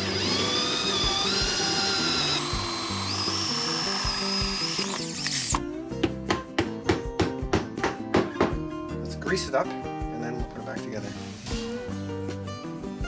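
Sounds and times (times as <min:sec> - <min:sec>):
power drill whining: 0:00.0 - 0:05.6
background music: 0:05.4 - 0:13.0.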